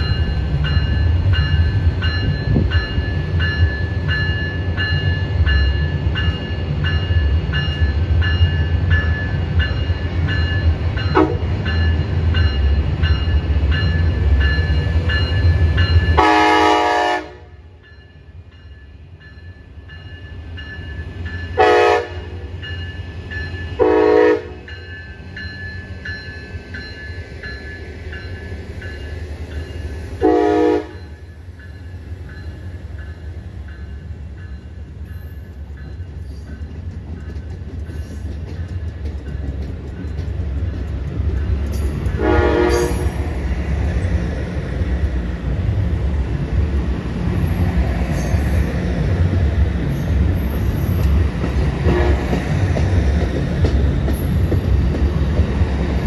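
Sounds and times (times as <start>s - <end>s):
train rumbling: 0.0s - 56.0s
train horn blasts: 11.1s - 11.5s, 16.2s - 17.7s, 21.6s - 22.5s, 23.8s - 24.7s, 30.2s - 31.2s, 42.1s - 43.3s, 51.8s - 52.4s.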